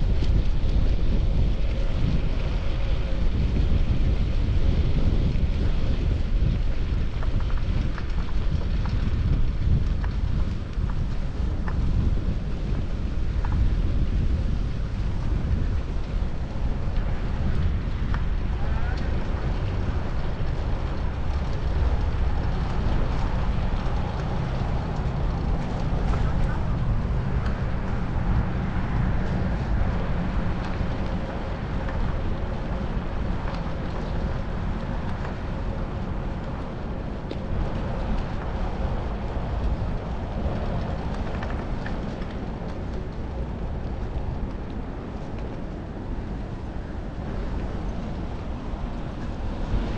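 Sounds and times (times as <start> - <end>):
traffic rumble: 0.0 - 49.9
wind buffeting microphone: 0.0 - 49.9
city traffic noise: 21.9 - 31.8.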